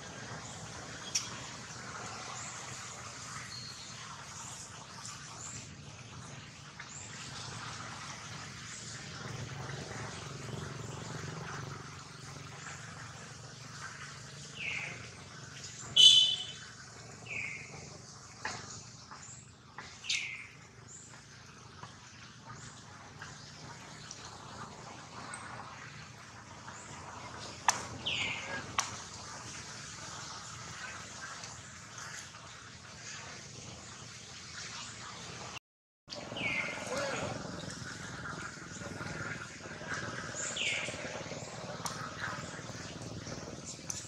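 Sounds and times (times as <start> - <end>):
birds chirping: 0.0 - 6.2, 8.5 - 32.2, 36.1 - 44.0
loud sharp bird call: 15.9 - 16.7.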